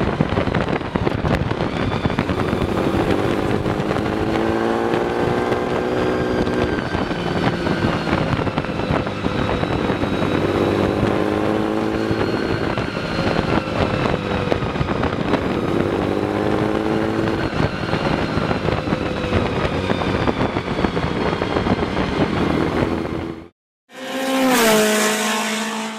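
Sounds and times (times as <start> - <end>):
car engine running: 0.0 - 20.6.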